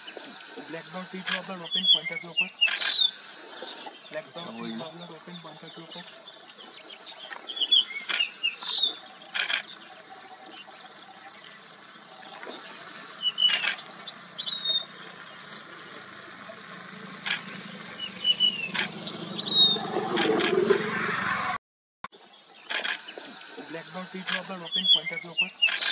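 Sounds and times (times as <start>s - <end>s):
small bird chirping: 0.4s - 4.8s, 5.4s - 11.6s, 12.5s - 15.5s, 18.0s - 20.3s, 22.6s - 25.9s.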